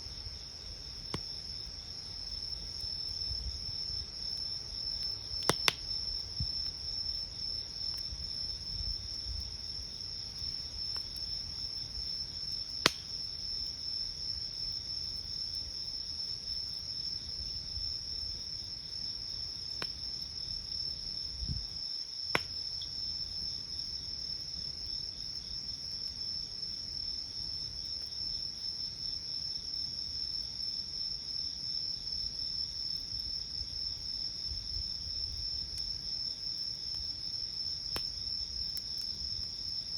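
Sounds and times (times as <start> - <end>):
crickets chirring: 0.0 - 39.9
campfire pops: 1.0 - 1.5, 4.4 - 8.3, 12.7 - 13.3, 19.7 - 20.1, 22.2 - 23.0, 37.8 - 39.6.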